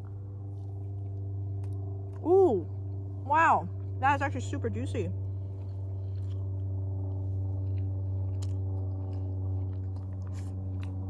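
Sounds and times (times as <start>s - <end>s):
steady low hum: 0.0s - 11.0s
person chewing chicken: 5.2s - 11.0s.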